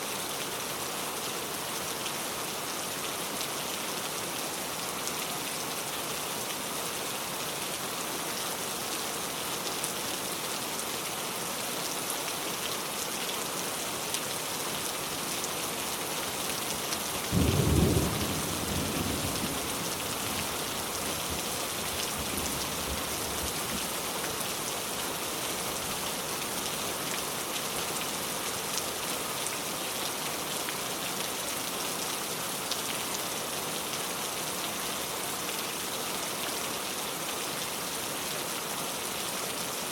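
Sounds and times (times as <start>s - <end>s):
rain falling on a car: 0.1s - 39.9s
thunder clap rumbling: 17.3s - 20.5s.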